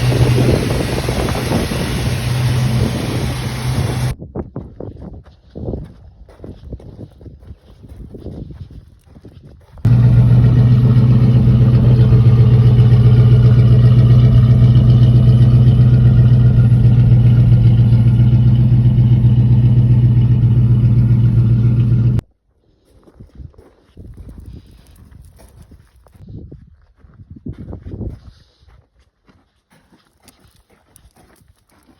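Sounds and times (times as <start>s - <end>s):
car engine running loudly: 0.0s - 4.2s, 9.9s - 22.2s.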